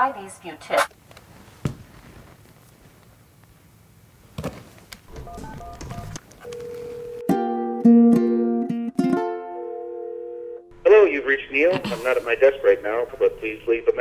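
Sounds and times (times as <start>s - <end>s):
telephone keypad beeps: 5.1s - 7.3s
telephone ringback tone: 5.1s - 7.8s, 9.8s - 10.7s
plucked ukulele music: 7.2s - 9.7s.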